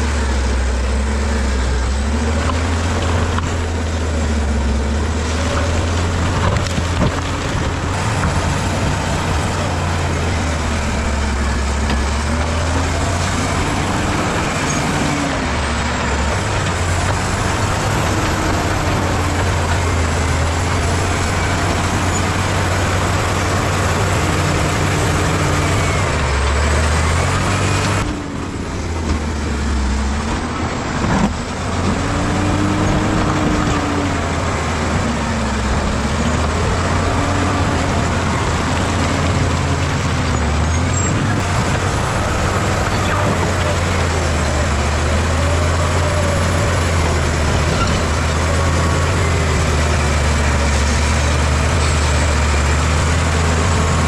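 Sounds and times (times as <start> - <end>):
bulldozer diesel engine: 0.0 - 54.0.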